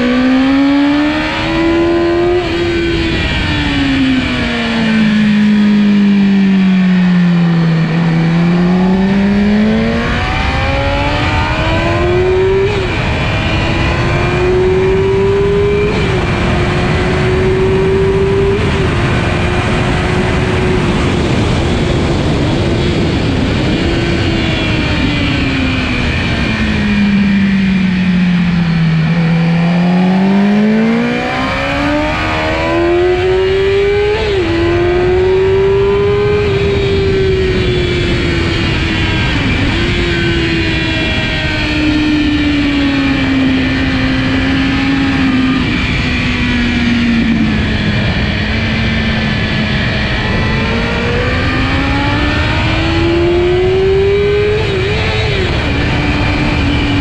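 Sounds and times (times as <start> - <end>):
engine blips from gear changes: 0.0 - 57.0
heavy wind noise: 0.0 - 57.0
motorcycle engine running hard: 0.0 - 57.0.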